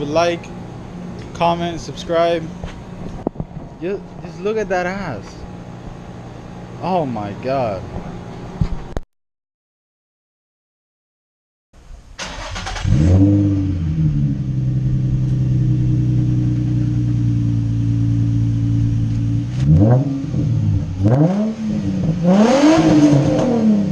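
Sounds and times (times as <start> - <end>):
car engine starting and idling: 11.8 - 23.9
engine revving blips: 12.2 - 23.9.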